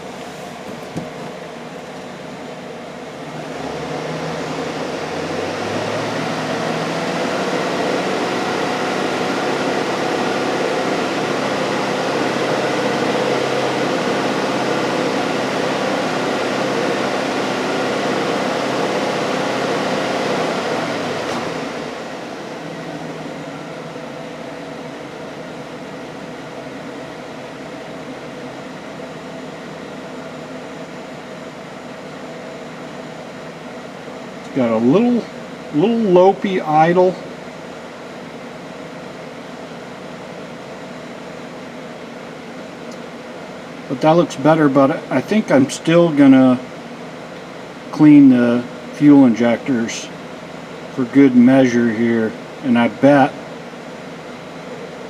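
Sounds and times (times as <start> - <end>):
truck engine idling and revving: 1.3 - 26.6.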